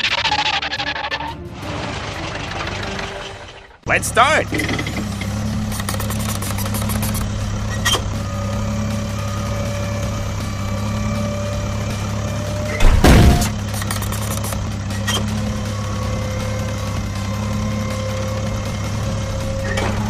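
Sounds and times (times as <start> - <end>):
heavy vehicle engine idling: 3.9 - 20.0
loud thump: 12.8 - 13.6.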